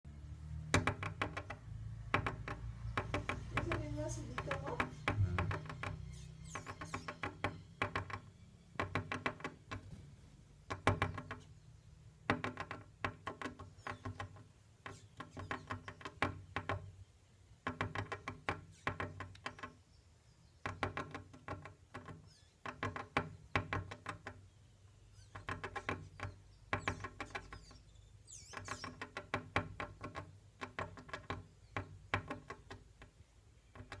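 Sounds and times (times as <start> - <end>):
bird calling in rapid notes: 3.5 - 8.8, 25.0 - 29.1.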